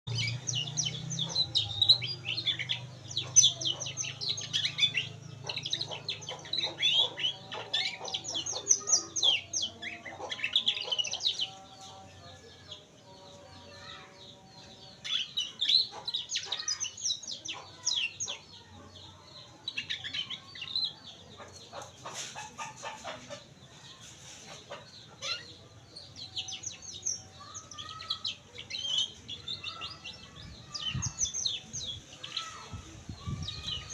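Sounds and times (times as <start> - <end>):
canary singing: 0.0 - 33.9.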